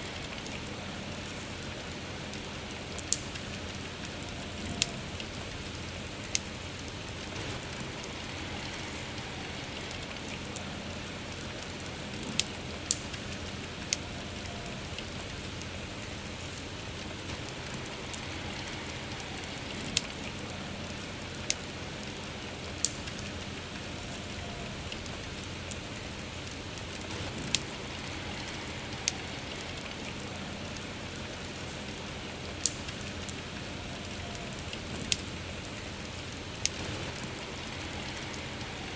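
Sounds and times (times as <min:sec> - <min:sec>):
campfire crackling pops: 0:00.0 - 0:38.9
steady soft rain: 0:00.0 - 0:38.9.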